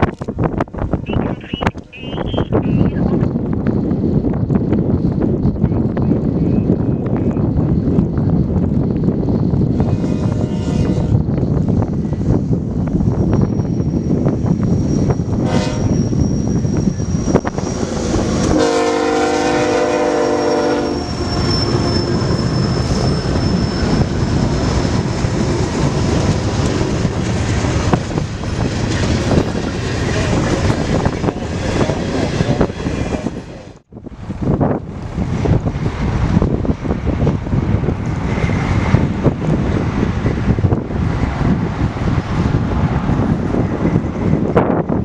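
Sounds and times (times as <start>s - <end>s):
passing train rumble: 0.0s - 45.0s
train air horn: 9.8s - 11.2s, 15.4s - 15.9s, 18.5s - 21.4s.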